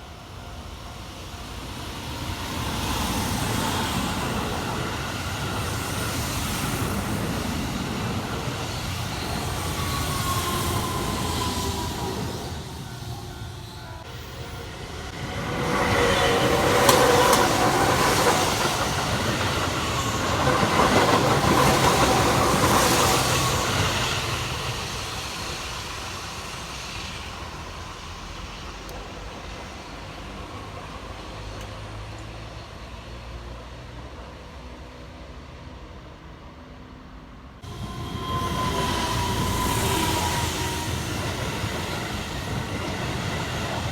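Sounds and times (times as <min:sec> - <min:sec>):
electric train passing: 0:00.0 - 0:43.9
wheels clicking on rail joints: 0:01.6 - 0:25.1.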